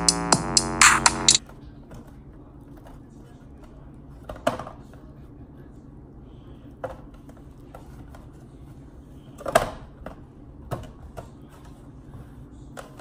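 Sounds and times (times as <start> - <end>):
steady low hum: 0.0 - 1.4.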